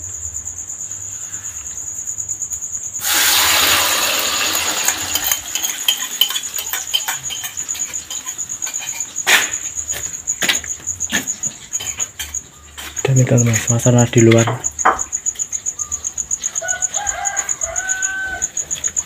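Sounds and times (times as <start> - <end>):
cricket trilling: 0.0 - 19.0
mixture sizzling in hot oil: 3.0 - 9.2.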